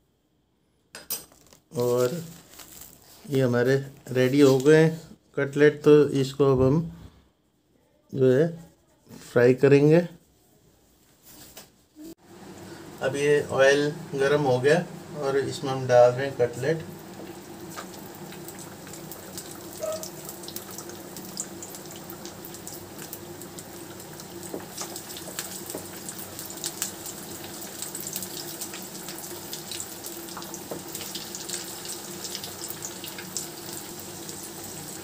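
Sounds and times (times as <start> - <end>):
food sizzling in hot oil: 12.2 - 35.0.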